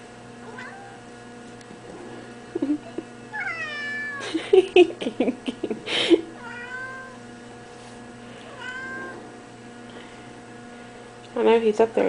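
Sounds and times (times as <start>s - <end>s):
kitten meowing: 3.4s - 4.2s.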